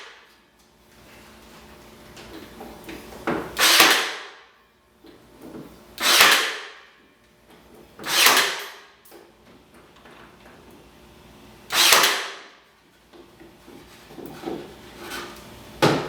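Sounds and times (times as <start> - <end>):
nail gun firing: 3.6 - 4.4, 6.0 - 6.9, 8.0 - 8.9, 11.7 - 12.6.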